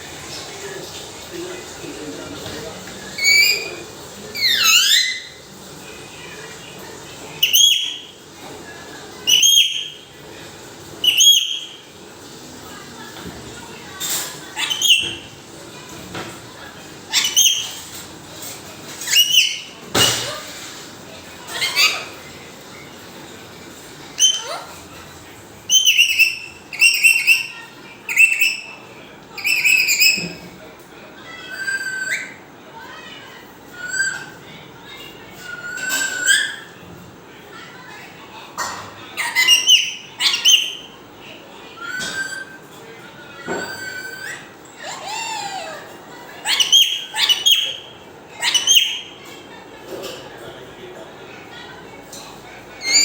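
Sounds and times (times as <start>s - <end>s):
parrot whistled calls: 3.1s - 5.5s, 7.4s - 8.2s, 9.2s - 10.1s, 11.0s - 11.9s, 14.5s - 15.3s, 17.1s - 17.9s, 19.0s - 20.5s, 21.5s - 22.2s, 24.2s - 24.9s, 25.7s - 30.5s, 31.4s - 32.4s, 33.8s - 34.4s, 35.4s - 36.7s, 39.2s - 41.0s, 41.8s - 42.6s, 43.4s - 49.2s, 52.8s - 53.0s.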